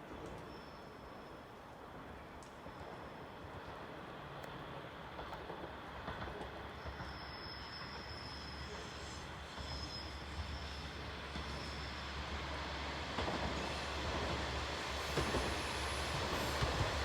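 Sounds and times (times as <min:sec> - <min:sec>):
train rumbling on rails: 0:00.0 - 0:17.0
thin high squeal: 0:07.1 - 0:10.9.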